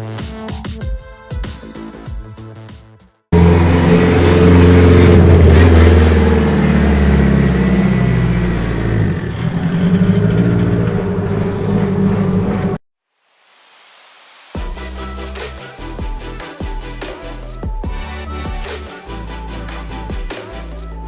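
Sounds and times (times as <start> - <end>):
car engine running: 3.4 - 12.8.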